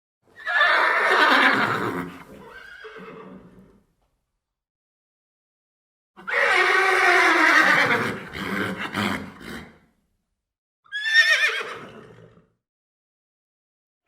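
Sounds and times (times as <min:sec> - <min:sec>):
horse whinnying: 0:00.3 - 0:03.9, 0:06.2 - 0:09.8, 0:10.9 - 0:12.5.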